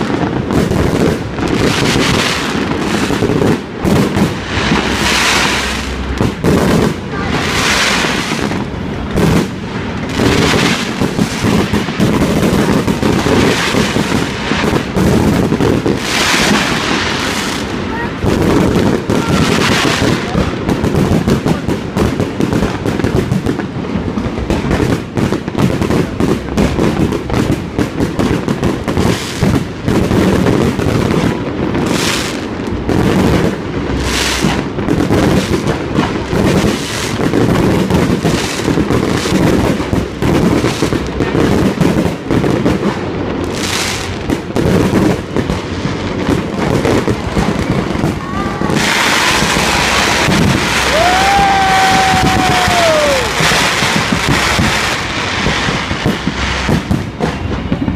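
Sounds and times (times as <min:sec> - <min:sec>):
fireworks bangs and crackling: 0:00.0 - 0:57.9
fireworks hissing bursts: 0:00.0 - 0:57.9.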